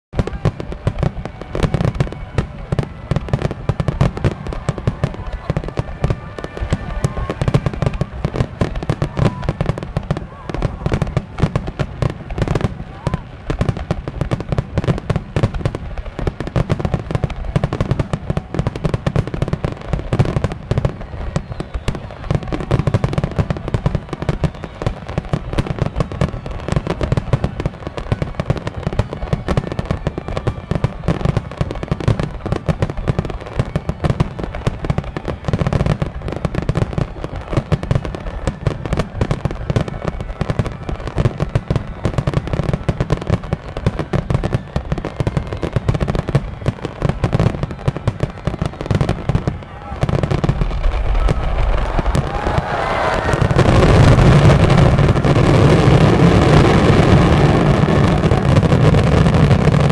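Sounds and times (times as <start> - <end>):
fireworks bangs and crackles: 0.1 - 59.9.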